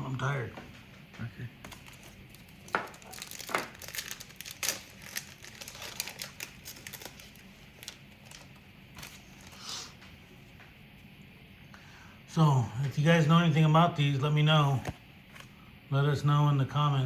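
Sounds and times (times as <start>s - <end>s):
wrapper rustle: 1.6s - 10.0s
wrapper crinkling and tearing: 1.7s - 9.7s.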